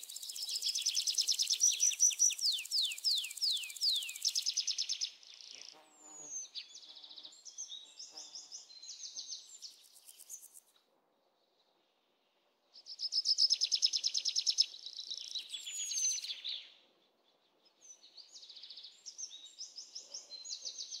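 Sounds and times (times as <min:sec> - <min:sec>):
songbird trilling and whistling: 0:00.0 - 0:05.1, 0:13.0 - 0:16.6.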